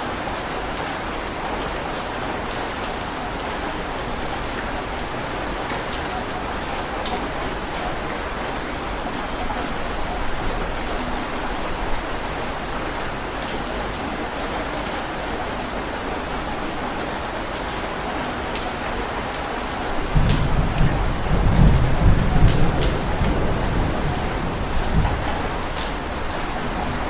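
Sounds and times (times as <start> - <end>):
heavy rain falling: 0.0 - 27.0
sharp raindrop taps: 19.3 - 27.0.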